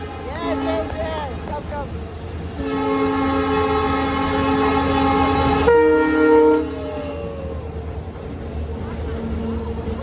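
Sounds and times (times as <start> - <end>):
train horn blast: 0.0 - 0.9, 2.6 - 6.9.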